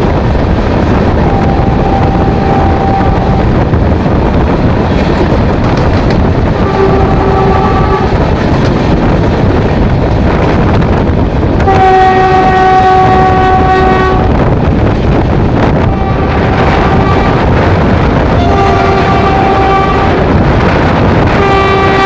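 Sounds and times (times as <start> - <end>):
train rumbling at speed: 0.0 - 22.0
train horn: 1.2 - 3.6, 6.5 - 8.2, 11.6 - 14.5, 15.8 - 20.4, 21.3 - 22.0.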